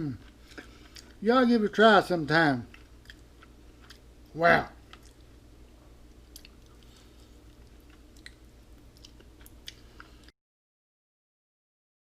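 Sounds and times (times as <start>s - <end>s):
person chewing: 0.0s - 1.2s, 2.6s - 10.3s
steady low hum: 0.0s - 10.3s.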